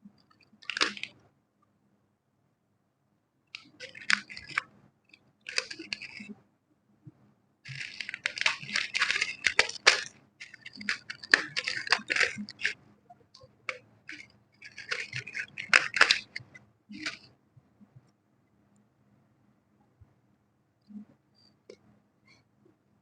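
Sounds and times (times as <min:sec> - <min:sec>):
crackling and scraping: 0:00.2 - 0:01.2, 0:03.5 - 0:06.4, 0:07.6 - 0:17.3.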